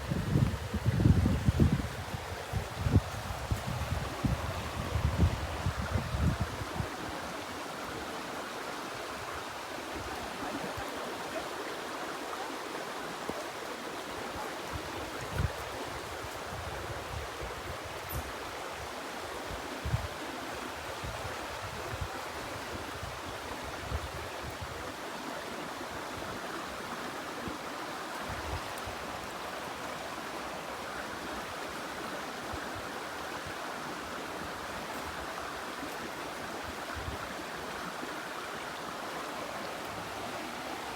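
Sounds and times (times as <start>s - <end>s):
wind bumps on microphone: 0.0s - 7.0s, 15.2s - 18.3s
stream water rushing: 0.0s - 40.9s.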